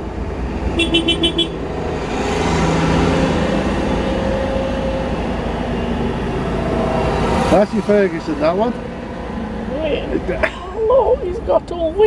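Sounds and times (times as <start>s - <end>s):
tractor engines running: 0.0s - 12.0s
horn tooting: 0.8s - 1.6s.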